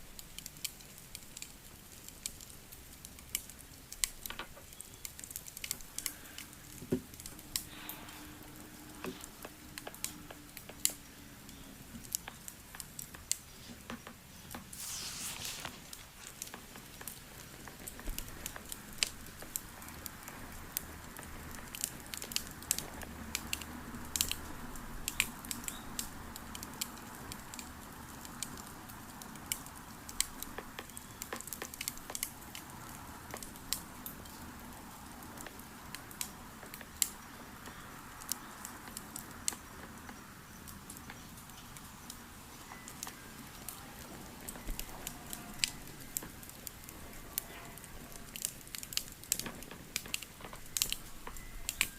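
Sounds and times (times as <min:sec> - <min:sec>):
wood fire crackling: 0:00.2 - 0:13.5, 0:14.7 - 0:23.6, 0:35.4 - 0:51.9
fire hissing: 0:14.7 - 0:17.2.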